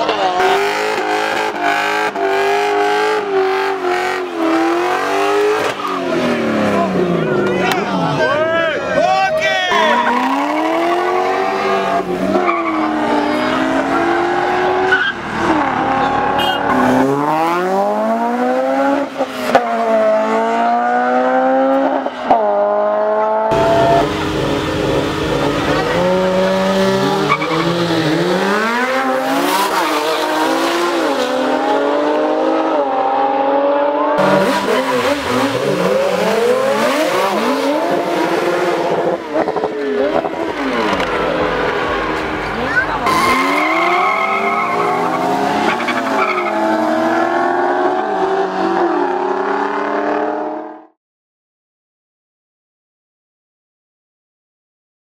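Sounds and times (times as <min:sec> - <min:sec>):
car engines revving and accelerating: 0:00.0 - 0:51.0
tyres squealing: 0:42.0 - 0:46.7.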